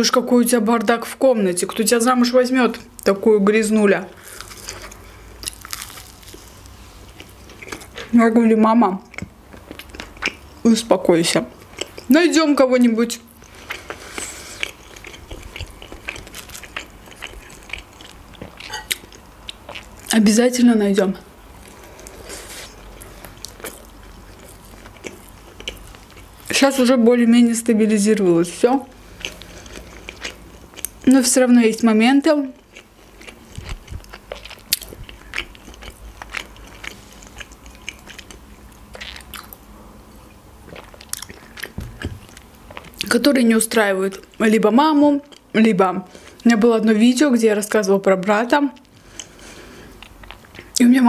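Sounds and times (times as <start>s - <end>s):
food crunching: 4.1s - 8.2s, 9.0s - 10.6s, 11.5s - 12.2s, 13.2s - 20.2s, 21.6s - 26.9s, 29.0s - 31.3s, 32.4s - 39.6s, 40.2s - 43.4s, 48.2s - 50.8s
crunchy crust clicks: 4.2s - 8.1s, 13.4s - 19.2s
chewing food: 4.2s - 8.2s, 9.0s - 10.6s, 11.5s - 12.1s, 13.2s - 20.2s, 21.6s - 26.6s, 29.0s - 31.1s, 32.5s - 39.6s, 40.2s - 43.3s, 48.7s - 50.8s.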